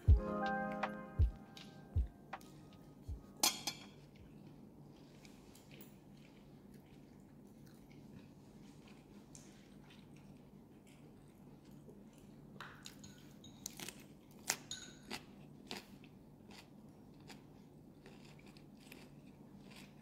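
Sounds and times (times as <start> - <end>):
close-up chewing with crunches: 4.1 - 13.0, 13.7 - 20.0.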